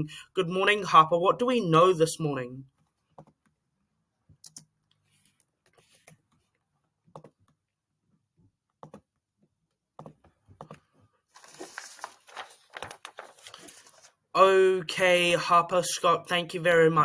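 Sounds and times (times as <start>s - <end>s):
faint clicks and taps: 2.8s - 3.6s, 4.3s - 7.6s, 8.4s - 11.1s.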